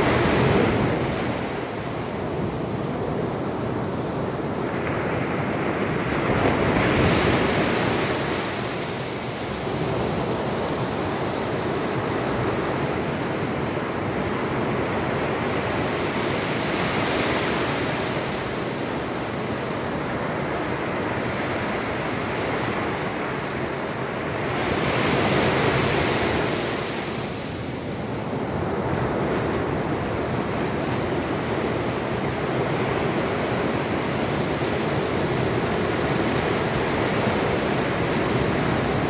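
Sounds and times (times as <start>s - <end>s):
ocean surf breaking: 4.7s - 27.8s.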